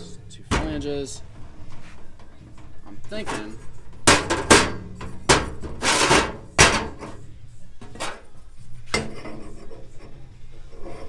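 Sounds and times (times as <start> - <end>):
metal scraping rub: 1.2 - 11.0
metal pipe pieces knocking: 2.6 - 7.2.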